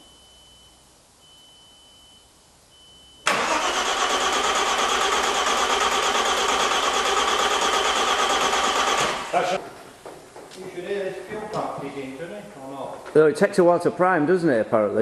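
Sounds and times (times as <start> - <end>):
starter motor cranking engine: 3.3 - 9.6.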